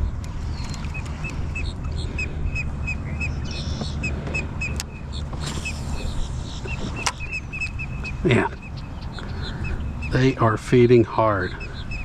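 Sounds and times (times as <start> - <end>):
bird chirping sharp notes: 0.0 - 12.0
wind rumble on microphone: 0.0 - 12.0.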